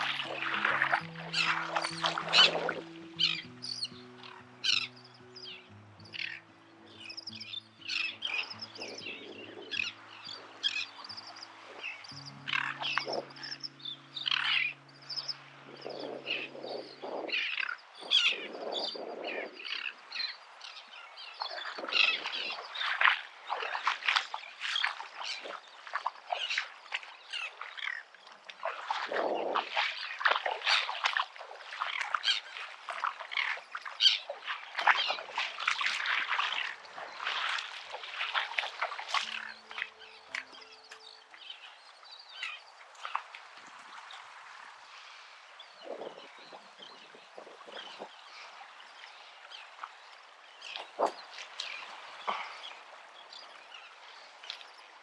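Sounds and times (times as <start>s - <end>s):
seagulls calling: 0.0s - 28.1s, 28.7s - 43.3s.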